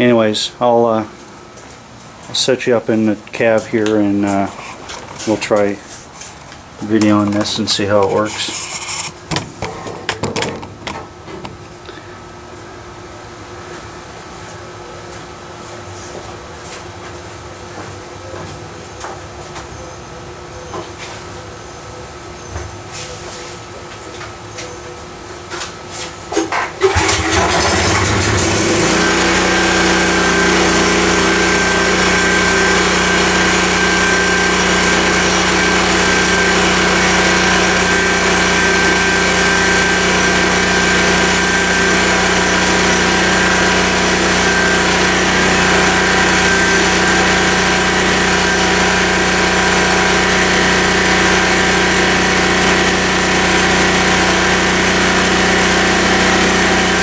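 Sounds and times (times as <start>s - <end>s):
portable generator engine running: 26.8s - 57.0s.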